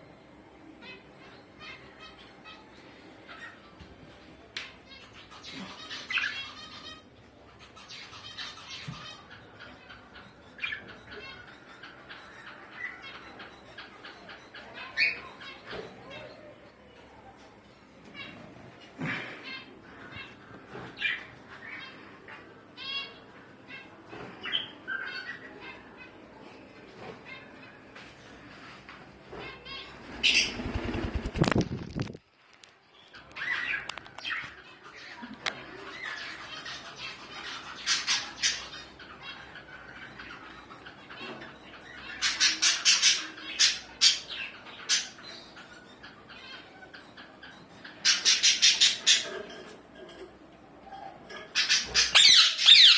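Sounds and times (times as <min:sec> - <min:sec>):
faint bird chirping: 0:00.0 - 0:52.9
birds making harsh calls: 0:00.8 - 0:16.8, 0:17.8 - 0:32.2, 0:33.0 - 0:52.9.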